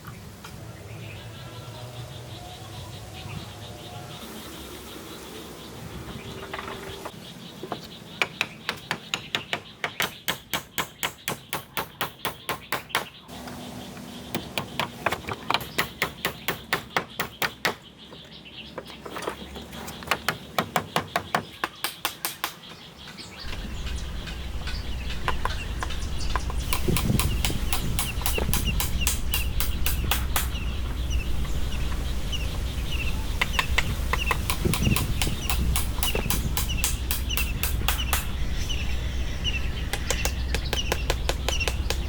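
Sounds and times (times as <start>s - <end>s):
hand tool striking wood: 20.1s - 22.7s, 25.2s - 30.6s, 33.4s - 38.4s, 39.9s - 42.0s
low steady noise: 23.4s - 42.0s.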